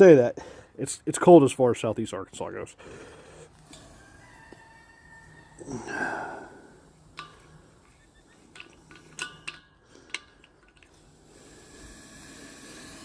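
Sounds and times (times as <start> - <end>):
steady hiss: 2.7 - 13.0
tools clinking on a bench: 8.4 - 11.0.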